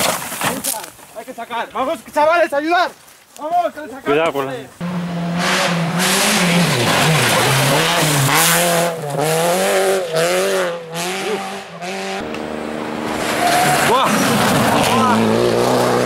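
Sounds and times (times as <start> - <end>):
car engine revving: 4.8 - 16.0
spinning tyres hissing: 12.2 - 16.0.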